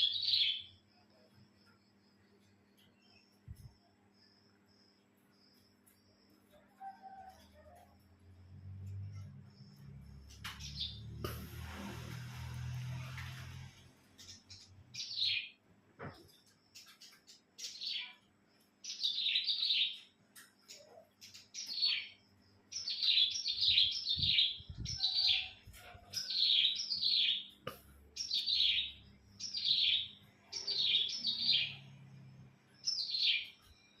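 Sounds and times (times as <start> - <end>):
songbird high chirps: 0.0 - 11.4, 13.0 - 34.0.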